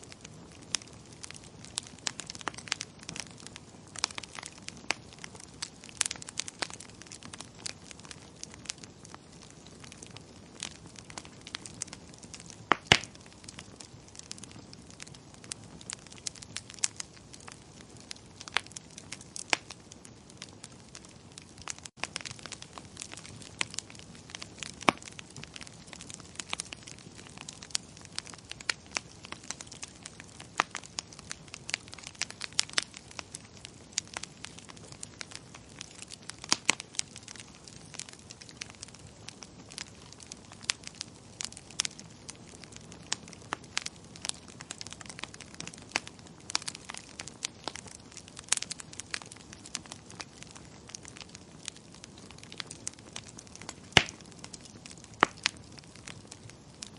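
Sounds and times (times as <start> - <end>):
wood fire crackling: 0.0 - 56.9.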